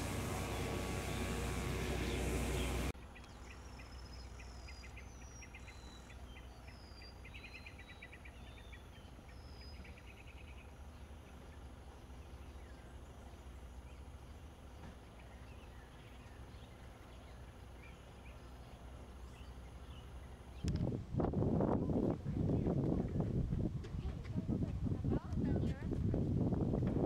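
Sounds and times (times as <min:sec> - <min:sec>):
loud continuous hum: 0:00.0 - 0:27.0
birds trilling chirps: 0:00.2 - 0:20.8.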